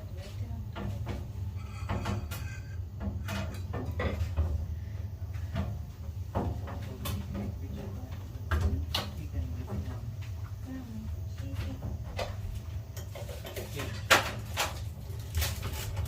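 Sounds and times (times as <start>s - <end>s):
scattered knocks and clicks: 0.7s - 4.7s.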